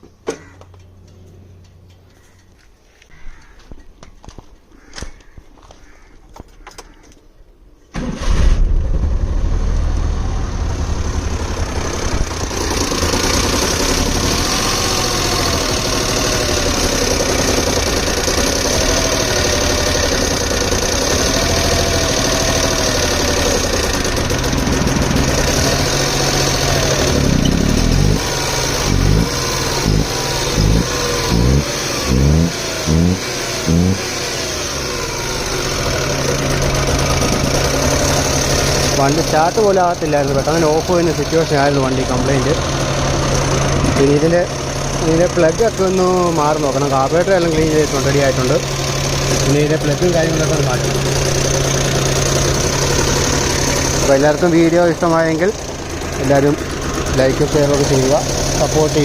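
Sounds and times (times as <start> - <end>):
car engine starting and revving: 7.9 - 59.0.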